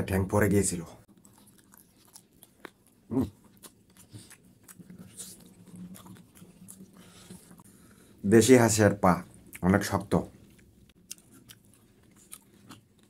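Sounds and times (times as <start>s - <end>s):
person chewing and biting: 1.1s - 7.7s, 10.4s - 13.0s.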